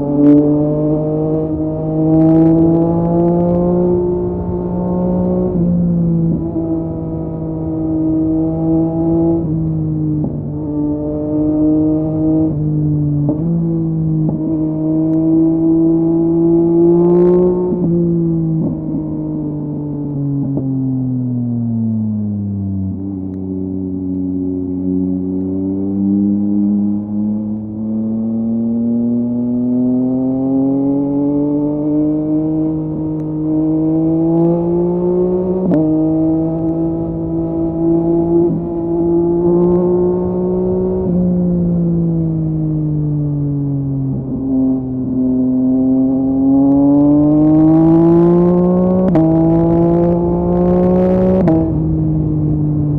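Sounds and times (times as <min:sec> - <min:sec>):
motorcycle engine under throttle: 0:22.4 - 0:52.9.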